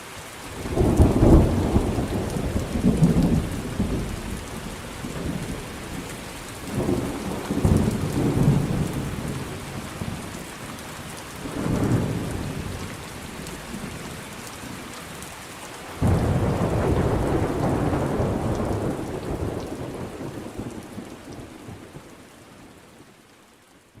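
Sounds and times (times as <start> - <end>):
rain falling steadily: 0.0 - 24.0
rolling thunder: 0.7 - 10.3, 16.0 - 20.9.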